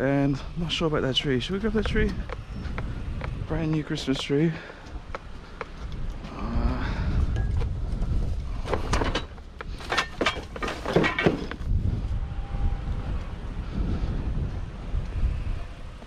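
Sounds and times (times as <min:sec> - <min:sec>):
wind rumbling on microphone: 0:00.0 - 0:16.0
knocks and rustles of junk handled: 0:07.3 - 0:11.7.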